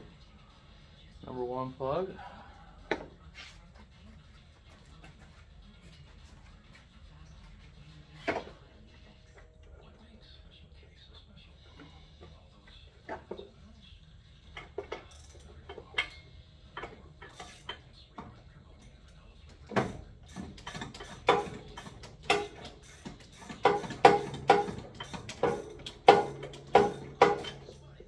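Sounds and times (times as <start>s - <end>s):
ratchet wrench clicking: 20.3s - 27.8s.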